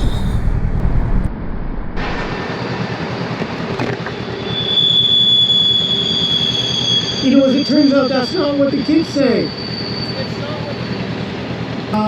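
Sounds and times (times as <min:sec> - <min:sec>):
train wheels rumbling on rails: 0:00.0 - 0:01.3, 0:05.8 - 0:12.0
high-pitched wheel squeal: 0:03.8 - 0:11.9.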